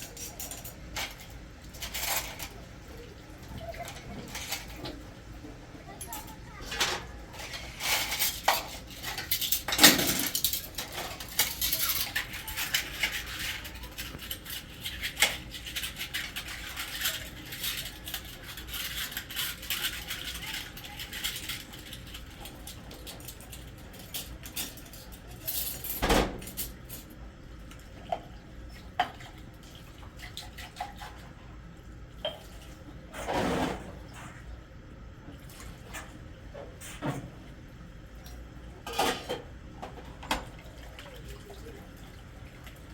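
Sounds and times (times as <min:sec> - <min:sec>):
dishes and cutlery clinking: 0:00.0 - 0:02.6, 0:05.9 - 0:27.1, 0:38.8 - 0:40.5.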